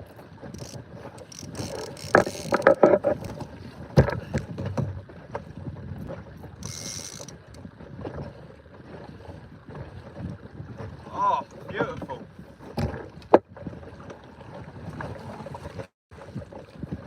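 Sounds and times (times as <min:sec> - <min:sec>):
knocks on inflatable boat: 0:12.7 - 0:13.5.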